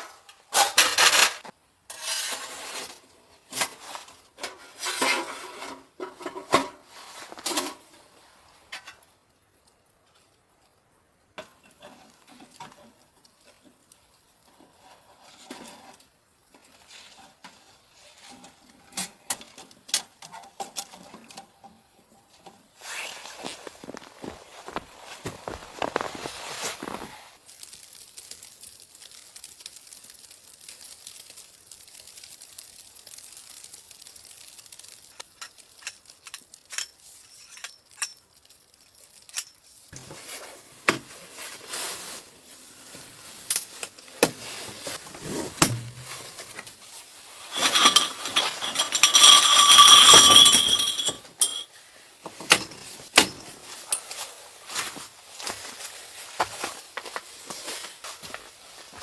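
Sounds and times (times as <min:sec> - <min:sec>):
clinks and knocks of small objects: 0:23.4 - 0:27.1, 0:34.5 - 0:40.0, 0:47.5 - 0:54.3
metallic scraping: 0:47.4 - 0:51.7.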